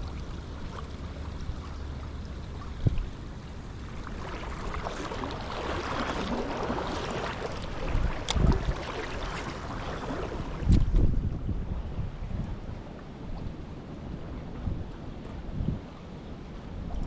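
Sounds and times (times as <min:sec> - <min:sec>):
river water rushing: 0:00.0 - 0:10.7
person wading through water: 0:00.0 - 0:10.9.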